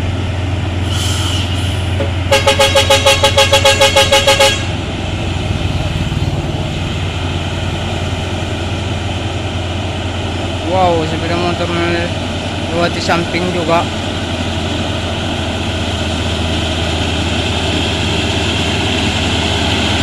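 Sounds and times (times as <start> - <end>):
heavy truck engine drone: 0.0 - 20.0
truck horn pulsing: 2.0 - 5.0.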